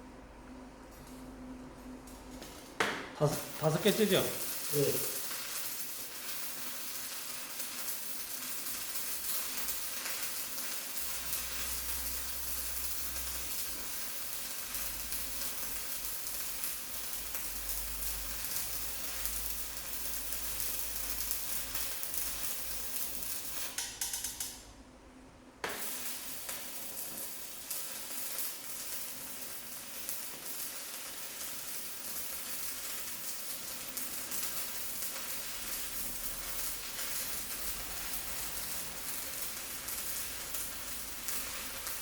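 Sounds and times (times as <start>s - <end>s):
welding arc crackling: 0.8s - 24.8s, 25.6s - 42.0s.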